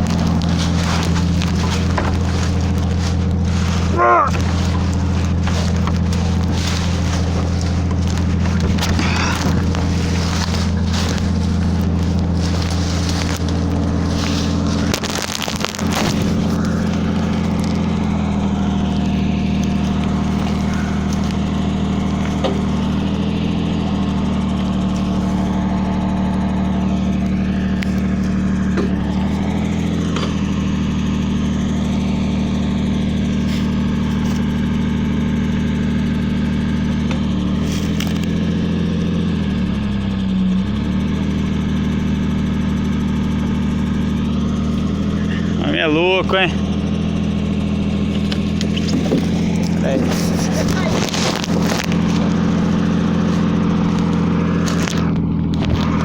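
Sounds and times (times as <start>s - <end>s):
truck diesel engine running: 0.0s - 56.0s.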